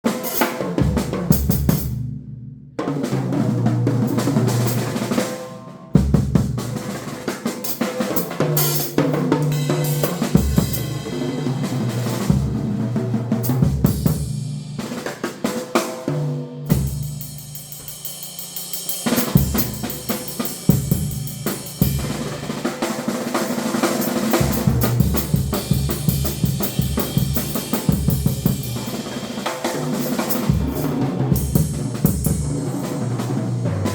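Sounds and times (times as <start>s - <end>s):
drum kit solo: 0.0s - 33.9s.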